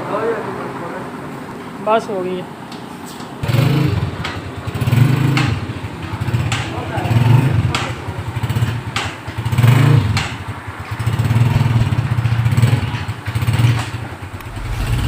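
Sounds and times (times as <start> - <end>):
motorcycle engine revving: 3.4 - 15.0.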